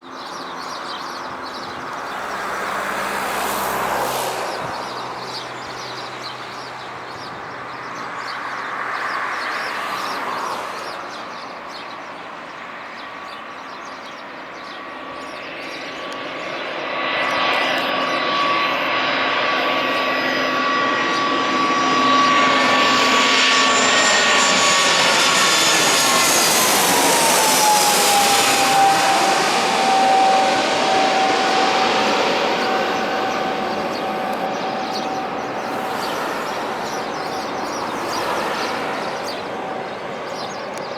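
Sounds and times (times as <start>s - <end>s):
jet engine whine: 0.0s - 40.9s
rushing noise: 25.4s - 40.0s.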